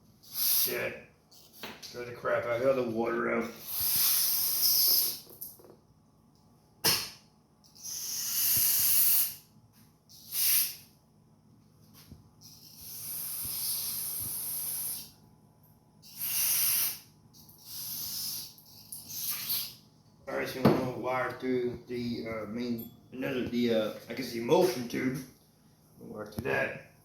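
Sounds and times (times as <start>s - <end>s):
aerosol spray hissing: 0.2s - 0.8s, 3.6s - 5.3s, 7.8s - 9.4s, 10.2s - 10.9s, 12.4s - 15.1s, 16.0s - 19.8s.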